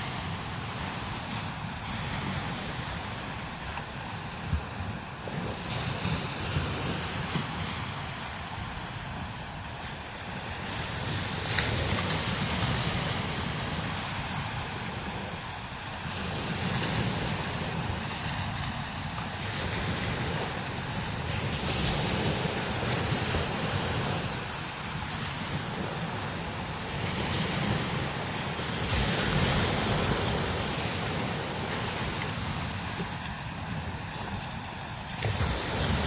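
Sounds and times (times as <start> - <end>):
strong wind gusting: 0.0 - 36.0
wind buffeting microphone: 0.0 - 36.0.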